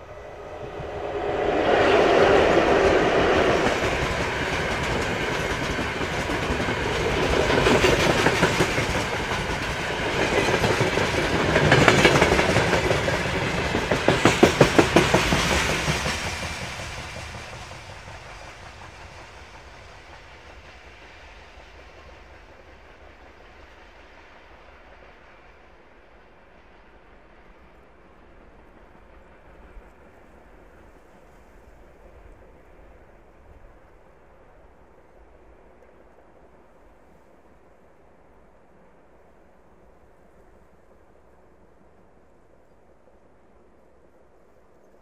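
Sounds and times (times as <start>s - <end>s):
freight train wheels clattering: 2.6s - 22.8s.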